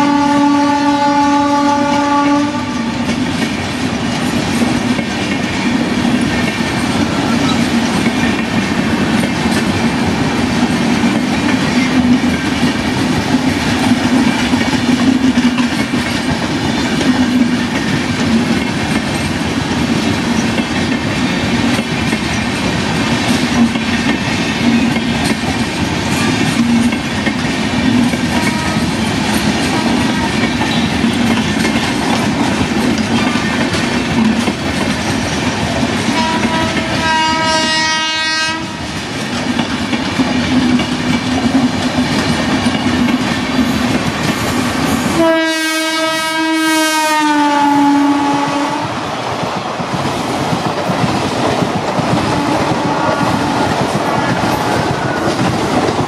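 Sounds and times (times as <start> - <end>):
locomotive horn: 0.0 - 3.1, 28.4 - 29.0, 36.1 - 38.9, 45.2 - 49.0, 52.4 - 53.7
rail clatter: 0.0 - 56.0
train coaches rumbling past: 0.0 - 56.0.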